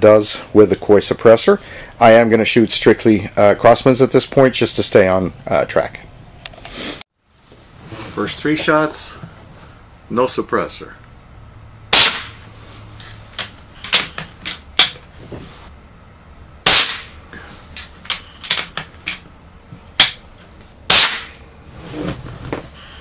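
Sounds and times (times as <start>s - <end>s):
air rifle shots: 11.9s - 12.4s, 16.6s - 17.2s, 20.9s - 21.4s.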